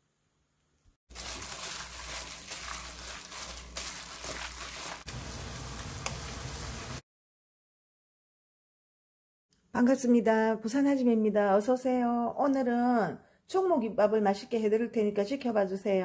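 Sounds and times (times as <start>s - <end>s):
fish cake sizzling in a pan: 1.1s - 7.0s.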